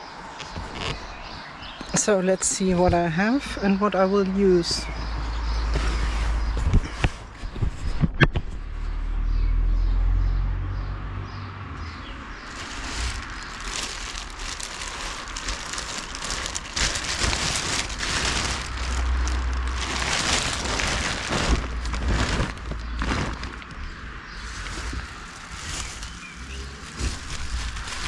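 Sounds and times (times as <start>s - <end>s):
clothes and bags rustling: 0.3s - 3.2s, 4.6s - 8.0s, 12.1s - 28.0s
low rumble: 11.8s - 28.0s.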